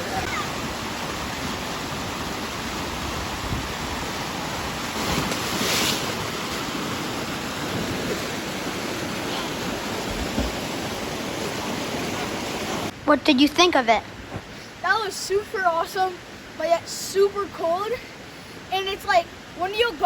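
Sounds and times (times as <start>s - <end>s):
water rushing down rock: 0.0s - 12.9s
water spray surge: 4.9s - 6.6s.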